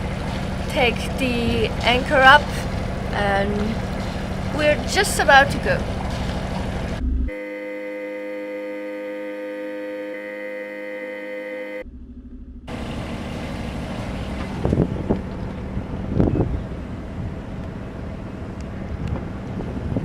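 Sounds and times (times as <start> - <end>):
boat engine running: 0.0 - 20.0
steady pitched tone: 6.8 - 19.0.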